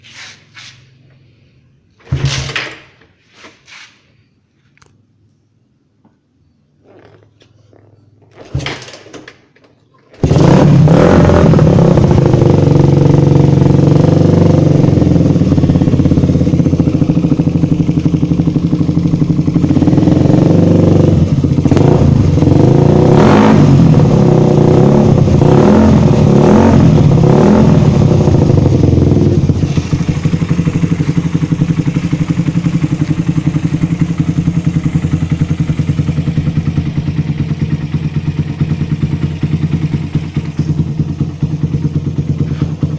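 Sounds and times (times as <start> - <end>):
motorcycle engine idling: 11.9 - 23.0, 26.0 - 42.9.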